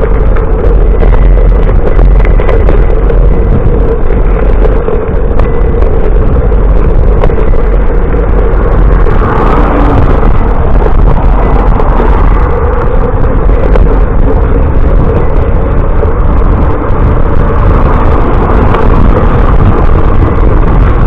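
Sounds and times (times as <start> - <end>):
bicycle road noise: 0.0 - 21.0
wind rumble on microphone: 0.0 - 21.0.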